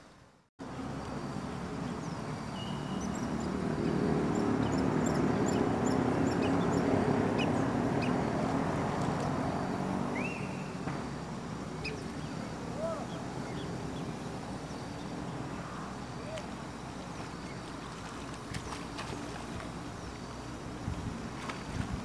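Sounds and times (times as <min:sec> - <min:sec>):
small birds chirping: 0:01.8 - 0:08.4.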